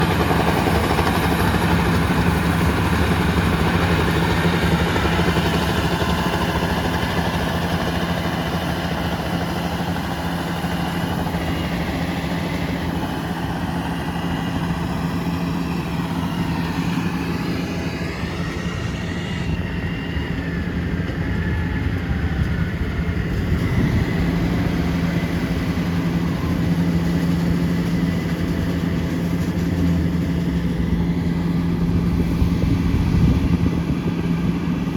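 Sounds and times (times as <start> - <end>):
combine harvester diesel engine drone: 0.0 - 34.9.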